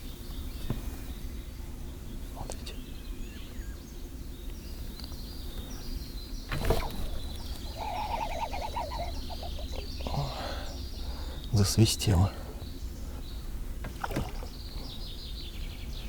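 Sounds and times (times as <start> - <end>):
birds singing: 0.0 - 16.0
fishing rod swish: 6.5 - 9.7
fishing line buzzing whistle: 6.5 - 10.8.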